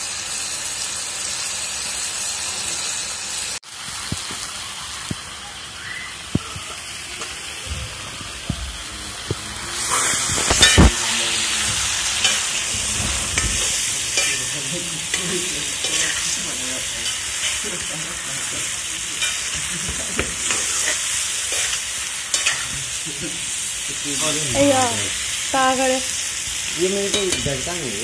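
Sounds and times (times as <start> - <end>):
food sizzling in a wok: 0.0 - 28.0
spatula scraping a pan: 9.8 - 17.8, 19.2 - 22.8.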